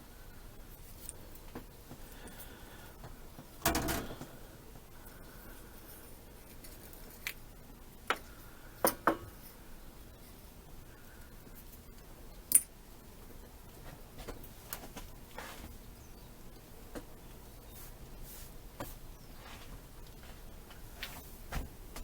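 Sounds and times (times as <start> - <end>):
carburetor parts clattering: 3.6 - 4.3.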